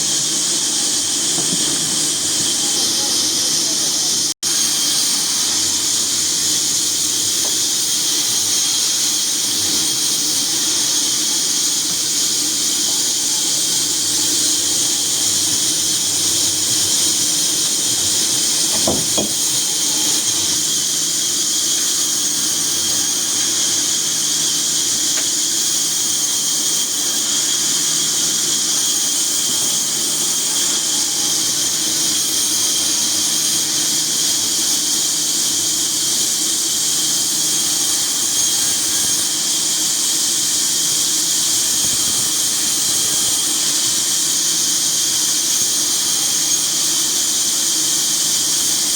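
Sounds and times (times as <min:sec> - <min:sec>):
sawmill saw squealing: 0:00.0 - 0:48.9
short knock: 0:18.7 - 0:19.6.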